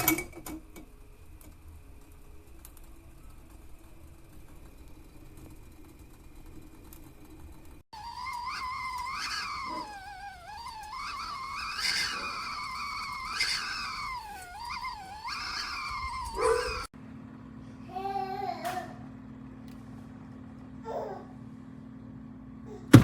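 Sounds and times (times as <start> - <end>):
stovetop kettle whistling: 1.4 - 16.9.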